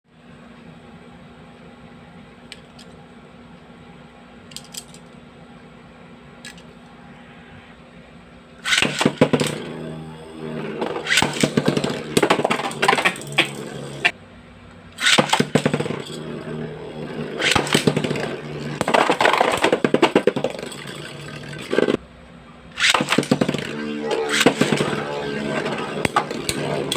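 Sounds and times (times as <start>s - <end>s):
spinning tops humming: 8.6s - 14.2s, 15.0s - 22.0s, 22.8s - 26.9s
metal tops clacking: 10.6s - 14.1s.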